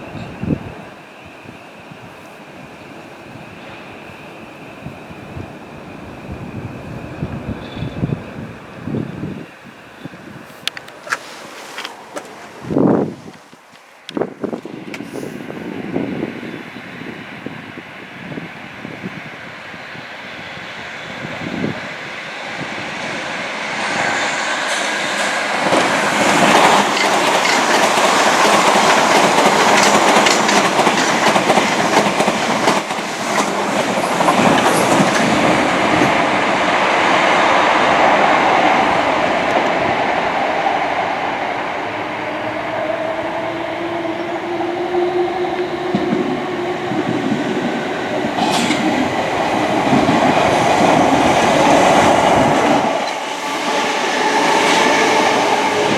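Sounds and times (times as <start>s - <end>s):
faint train whine: 0.0s - 55.9s
train wheels clattering: 23.8s - 36.4s, 44.2s - 55.9s.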